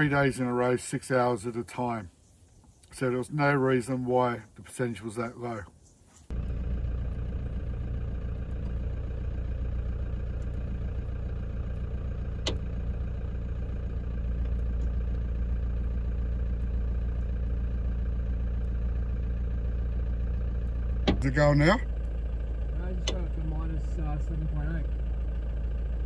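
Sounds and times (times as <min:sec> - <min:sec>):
engine idling: 0:00.0 - 0:01.9, 0:06.3 - 0:26.0
sharp click: 0:23.0 - 0:23.3.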